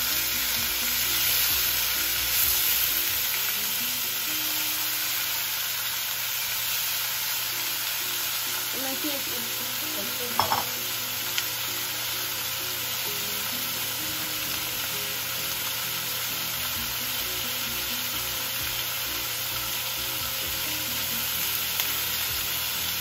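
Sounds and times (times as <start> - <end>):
chicken sizzling in oil: 0.0 - 23.0
chopsticks tapping pan: 10.3 - 10.8.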